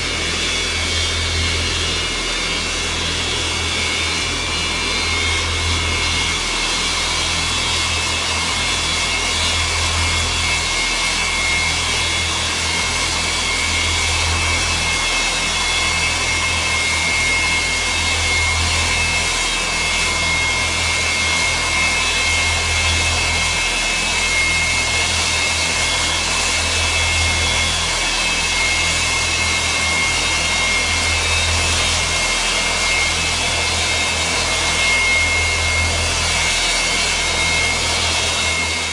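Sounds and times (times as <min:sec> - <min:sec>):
high steady engine whine: 0:00.0 - 0:38.9
jet engines roaring: 0:00.0 - 0:38.9
pulsing low hum: 0:00.0 - 0:38.9.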